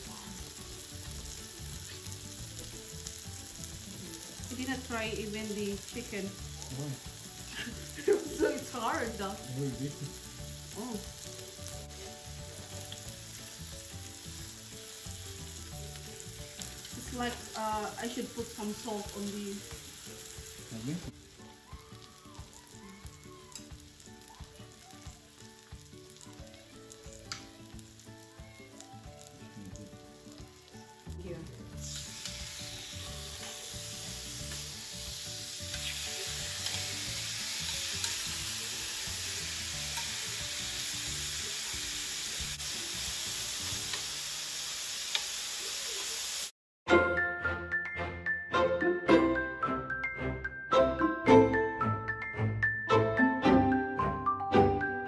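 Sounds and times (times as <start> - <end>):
vegetables sizzling on griddle: 0.0 - 46.5.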